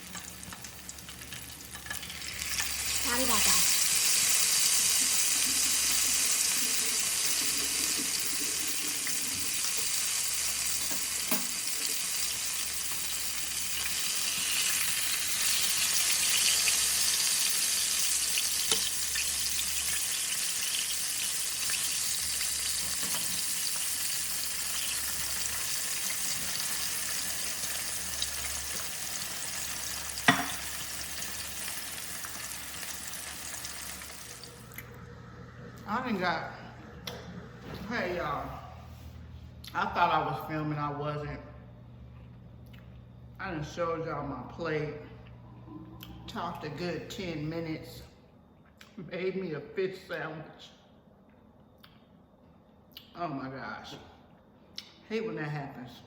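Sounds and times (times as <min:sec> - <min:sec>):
patties sizzling in hot oil: 0:00.0 - 0:34.9.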